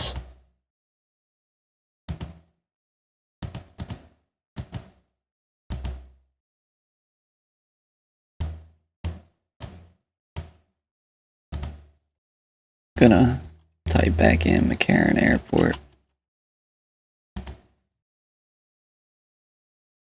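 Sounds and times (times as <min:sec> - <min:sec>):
computer mouse clicks: 0:02.1 - 0:02.5, 0:03.4 - 0:05.1, 0:05.7 - 0:06.2, 0:08.4 - 0:10.7, 0:11.6 - 0:12.0, 0:17.4 - 0:17.8.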